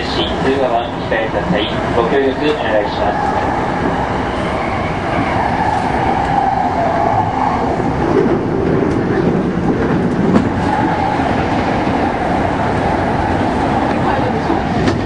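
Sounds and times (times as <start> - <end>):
passing train: 0.0 - 15.0
train wheels rumbling on rail: 0.0 - 15.0
clickety-clack over rail joints: 8.0 - 13.0, 13.7 - 15.0.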